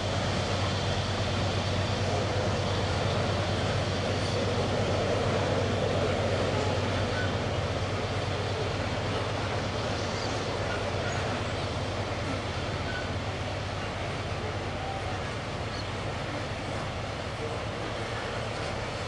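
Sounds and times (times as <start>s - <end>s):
freight train wheels rumbling on rails: 0.0s - 19.0s.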